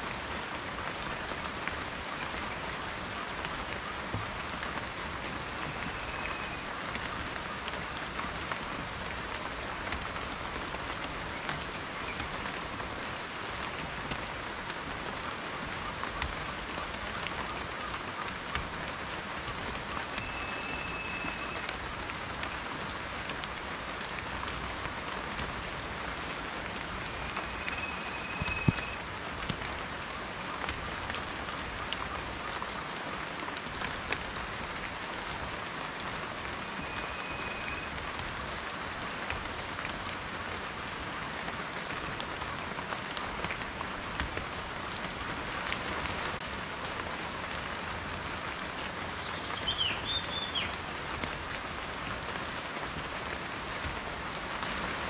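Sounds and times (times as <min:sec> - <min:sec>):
raindrops tapping: 0:00.1 - 0:37.0, 0:37.8 - 0:46.5
faint high whistle: 0:20.2 - 0:21.7, 0:27.2 - 0:29.0, 0:36.8 - 0:37.9.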